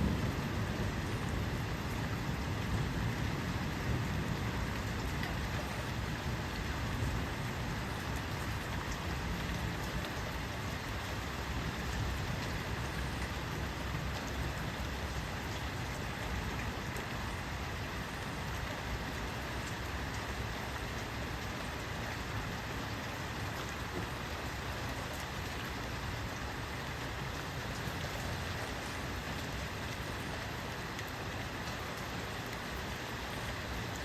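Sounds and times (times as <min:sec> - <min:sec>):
steady rain hiss: 0:00.0 - 0:34.0.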